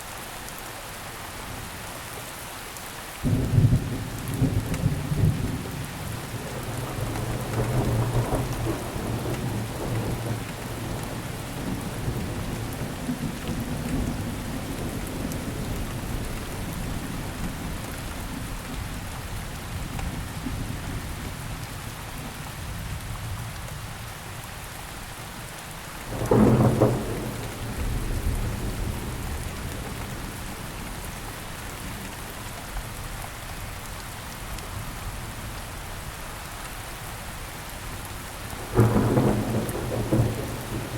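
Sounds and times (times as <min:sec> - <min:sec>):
steady rainfall: 0:00.0 - 0:40.9
loud sharp thunderclap: 0:26.1 - 0:30.0, 0:38.7 - 0:40.9
rolling thunder: 0:26.1 - 0:30.9, 0:38.6 - 0:40.9.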